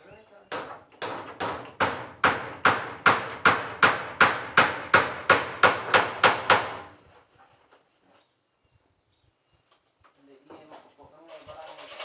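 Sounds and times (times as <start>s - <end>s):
hammer driving a nail: 0.5s - 6.9s.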